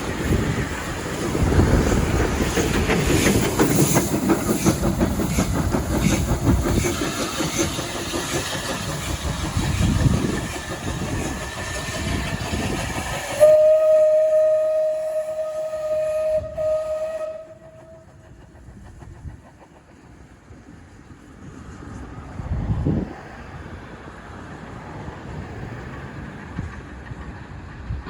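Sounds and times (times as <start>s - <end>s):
wheels clattering over rail joints: 0.0s - 13.4s
train rumbling by: 0.0s - 28.0s
steady train whistle: 13.0s - 18.4s.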